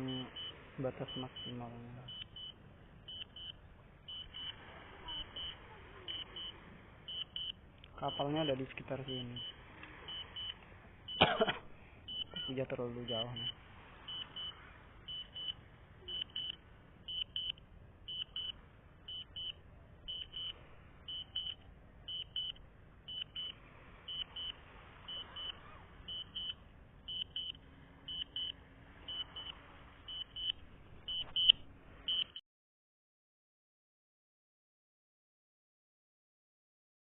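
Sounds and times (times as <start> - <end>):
short high-pitched warning beeps: 0.0 - 32.4.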